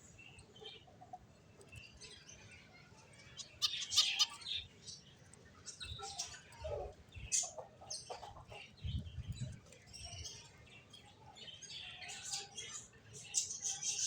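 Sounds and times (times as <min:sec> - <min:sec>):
finches chirping: 0:03.4 - 0:04.7.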